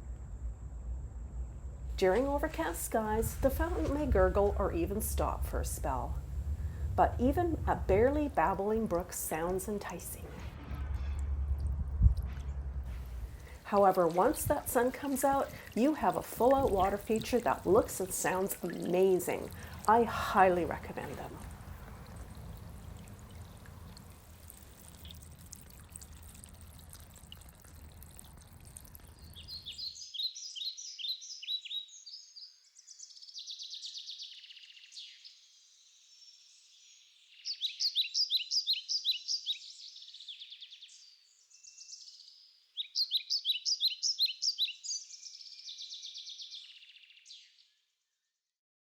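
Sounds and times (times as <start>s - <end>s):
fountain splashing into bowl: 12.2s - 29.8s
songbird trilling: 29.2s - 35.3s, 36.8s - 47.5s.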